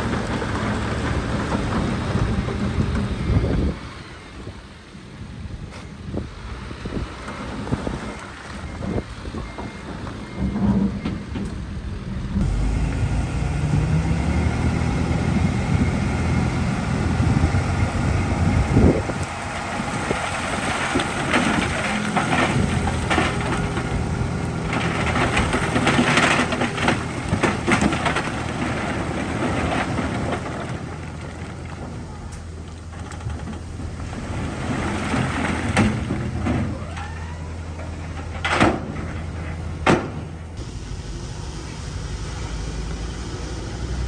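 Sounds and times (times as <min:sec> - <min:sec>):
diesel engine under load: 0:00.0 - 0:44.0
rock and dirt clattering: 0:18.4 - 0:40.4.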